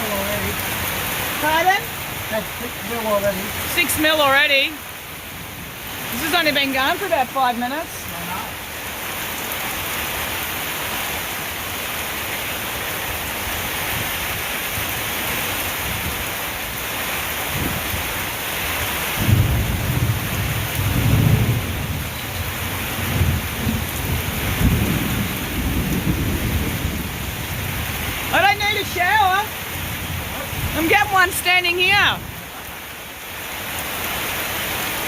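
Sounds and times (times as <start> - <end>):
heavy rain hiss: 0.0 - 35.0
thunder rumbling: 19.2 - 32.4.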